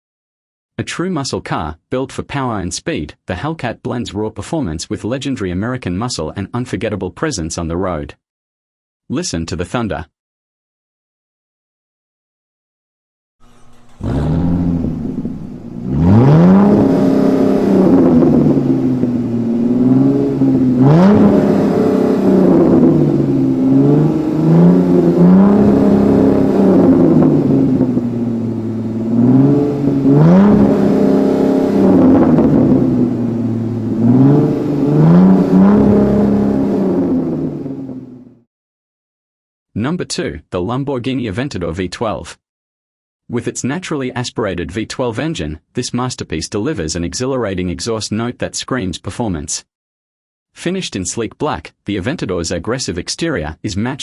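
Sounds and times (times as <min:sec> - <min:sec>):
car engine revving: 0:13.4 - 0:38.3.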